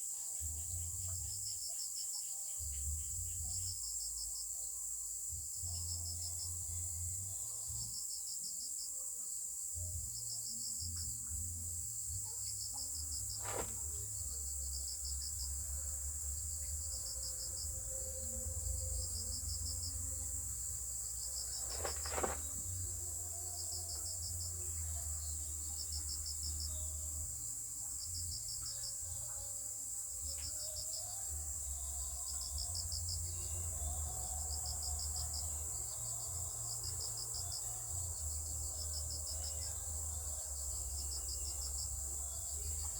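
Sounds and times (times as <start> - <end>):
cricket chirping: 0.0 - 42.9
insects high trill: 15.4 - 24.6.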